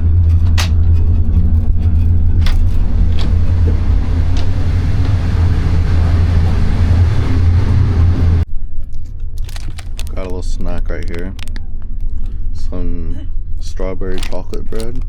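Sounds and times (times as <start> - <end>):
train rumbling from inside: 0.0 - 8.5.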